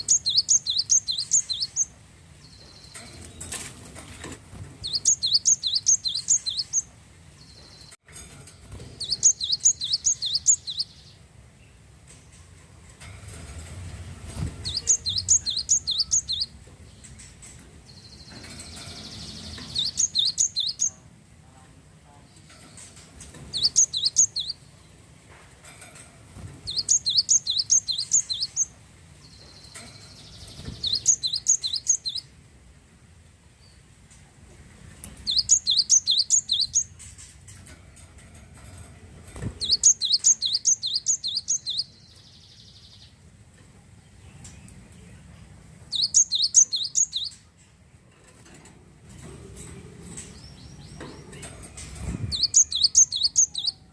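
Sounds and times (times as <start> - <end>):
bird singing high sharp notes: 0.0 - 1.9, 4.8 - 6.9, 9.0 - 11.1, 14.6 - 16.5, 18.0 - 21.0, 23.5 - 24.6, 26.7 - 28.7, 29.6 - 32.3, 35.3 - 36.9, 39.6 - 43.0, 45.9 - 47.4, 52.2 - 53.9.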